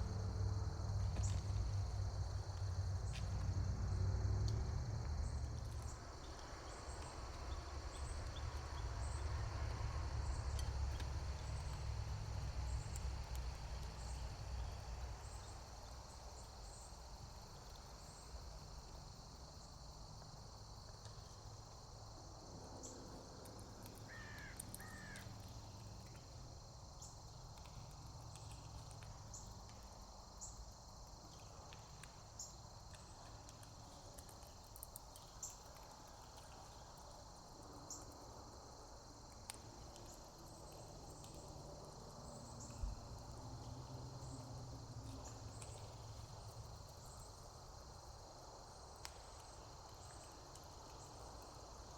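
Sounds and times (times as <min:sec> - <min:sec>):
insect chorus trilling: 0:13.9 - 0:51.9.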